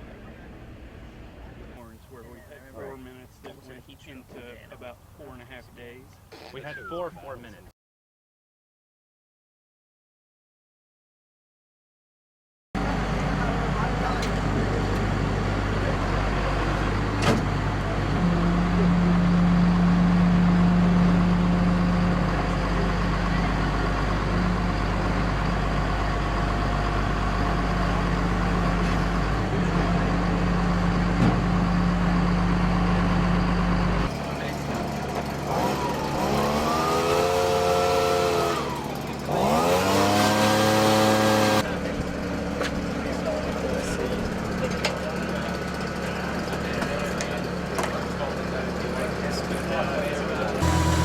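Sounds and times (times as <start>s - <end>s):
engine rumble with low hum: 0.0s - 7.3s, 12.8s - 51.0s
race car engine revving hard: 35.4s - 41.6s, 50.6s - 51.0s.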